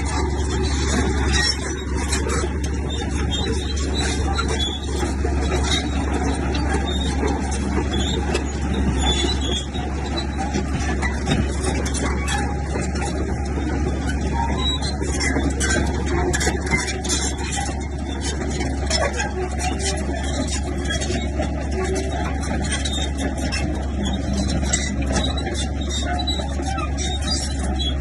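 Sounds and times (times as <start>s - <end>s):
bulldozer diesel engine running: 0.0s - 28.0s.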